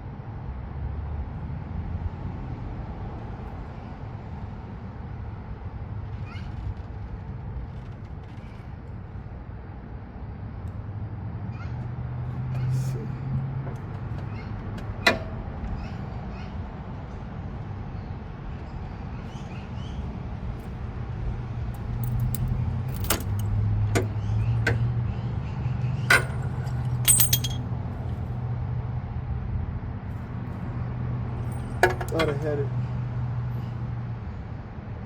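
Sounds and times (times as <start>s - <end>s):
metal tool clicks and knocks: 15.1s - 15.4s, 22.0s - 24.9s, 26.1s - 27.6s, 31.5s - 32.4s
metal jingling: 21.8s - 24.8s, 26.1s - 27.6s, 31.4s - 32.6s.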